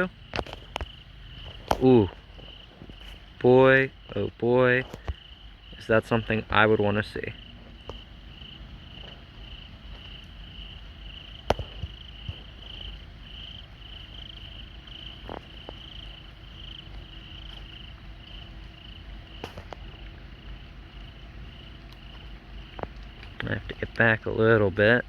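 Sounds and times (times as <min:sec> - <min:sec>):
crickets chirping: 0:00.0 - 0:25.0
low background hum: 0:00.0 - 0:25.0
faint ticks: 0:09.9 - 0:24.1.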